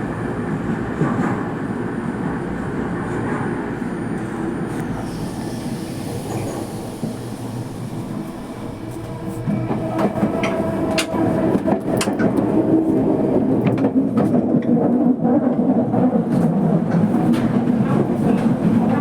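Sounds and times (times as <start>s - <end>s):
train wheel and rail noise: 0.0s - 19.0s.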